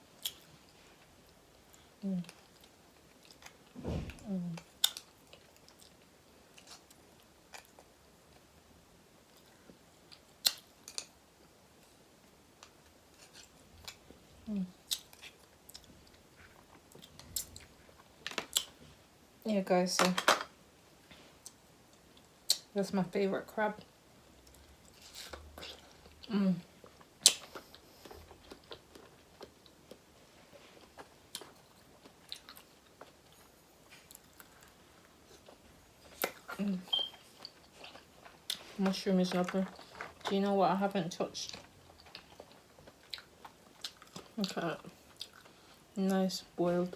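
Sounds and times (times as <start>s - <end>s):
chewing: 24.4s - 40.3s, 41.4s - 45.9s.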